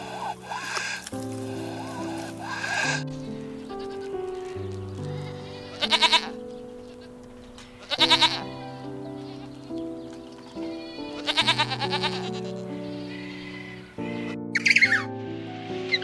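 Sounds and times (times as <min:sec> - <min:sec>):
soft background music: 0:00.0 - 0:16.0
goat bleating: 0:05.2 - 0:06.4, 0:07.8 - 0:08.6, 0:10.8 - 0:13.8.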